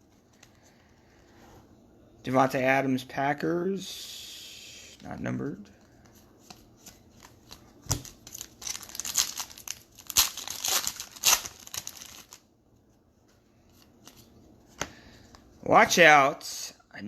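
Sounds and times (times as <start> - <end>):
wrapper crinkling and tearing: 7.2 - 12.4.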